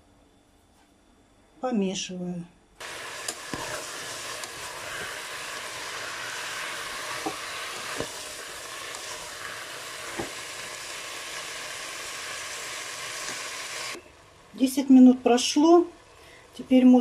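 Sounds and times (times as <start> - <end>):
food sizzling in oil: 2.8 - 17.0.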